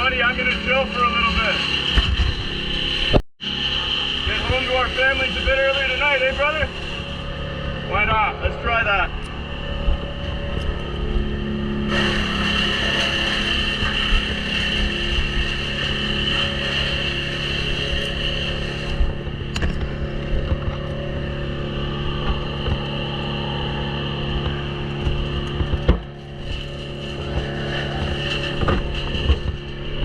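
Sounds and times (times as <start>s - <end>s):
wood chipper engine running: 0.0s - 30.0s
branches grinding in chipper: 9.1s - 30.0s.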